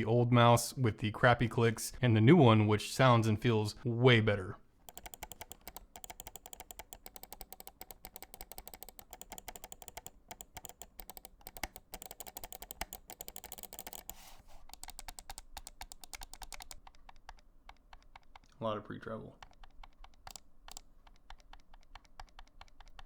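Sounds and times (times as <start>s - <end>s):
mouse buttons clicking rapidly: 4.8s - 23.0s.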